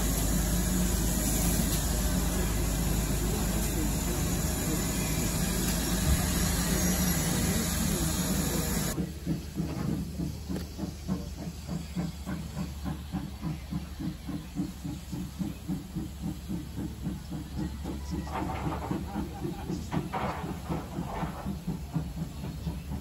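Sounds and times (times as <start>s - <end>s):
railway carriage rumbling: 0.0s - 23.0s.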